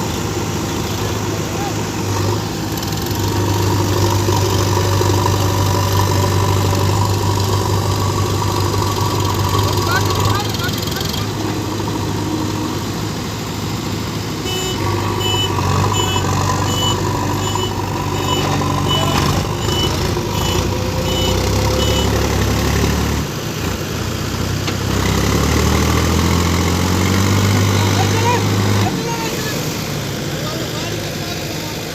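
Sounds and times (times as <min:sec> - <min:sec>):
diesel engines droning: 0:00.0 - 0:31.9
reversing alarm beeping: 0:14.5 - 0:22.2.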